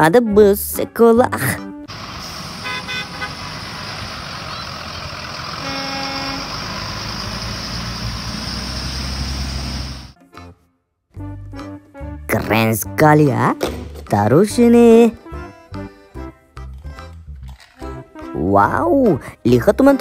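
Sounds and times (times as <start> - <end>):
bus engine rumble: 1.4 - 10.2
tyre hiss on wet road: 1.9 - 10.2
short horn toot: 2.6 - 3.4, 5.6 - 6.5.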